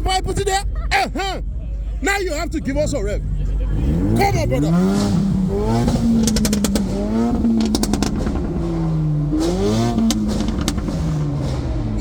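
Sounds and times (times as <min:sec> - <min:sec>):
car engine revving: 0:00.0 - 0:12.0
exhaust crackling pops: 0:04.8 - 0:12.0.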